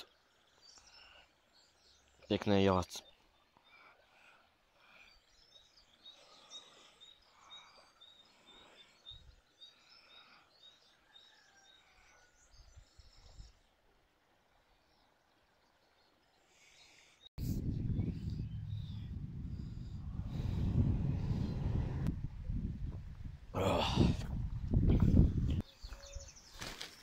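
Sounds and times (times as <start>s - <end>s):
soft low thumps: 17.4s - 23.3s
bird high chirp: 25.6s - 26.6s.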